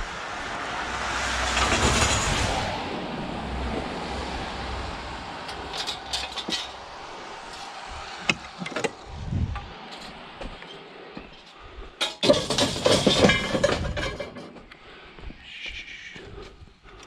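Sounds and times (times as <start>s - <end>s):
vehicle passing: 0.0s - 11.1s
sharp knocks and clanks: 7.6s - 9.0s, 9.6s - 14.7s.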